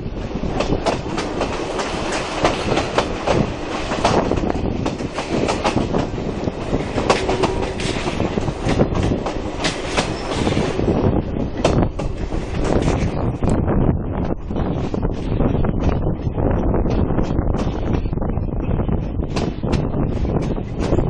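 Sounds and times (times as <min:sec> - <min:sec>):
train running noise: 0:00.0 - 0:21.0
wheels clattering over rail joints: 0:00.5 - 0:13.4.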